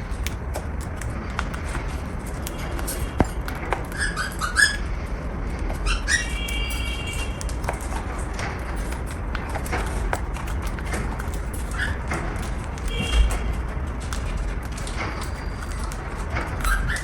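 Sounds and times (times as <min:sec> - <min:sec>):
cockatiel chirping: 0:03.9 - 0:04.9, 0:05.8 - 0:07.5, 0:16.6 - 0:17.0.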